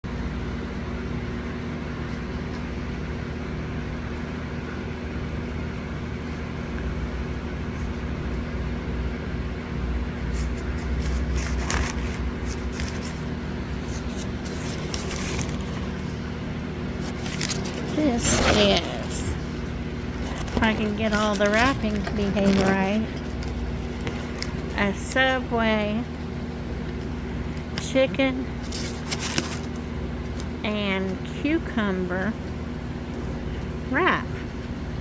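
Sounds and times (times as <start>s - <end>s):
paper wrapping crinkling: 10.4s - 24.8s, 28.6s - 30.6s.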